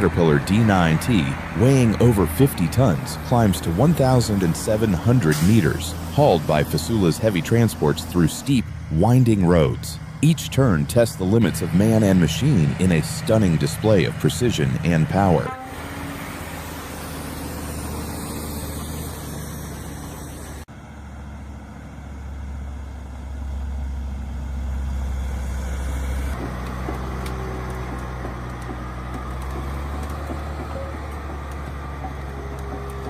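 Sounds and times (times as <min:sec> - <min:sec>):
road noise: 0:00.0 - 0:33.0
truck engine droning: 0:00.0 - 0:33.0.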